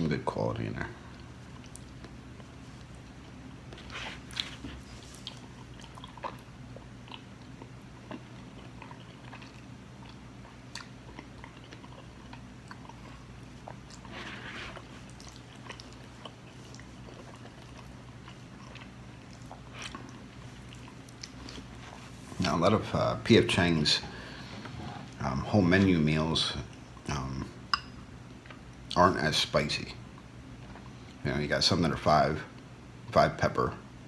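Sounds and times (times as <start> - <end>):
steady low hum: 0.0 - 34.0
person chewing food: 1.1 - 22.5.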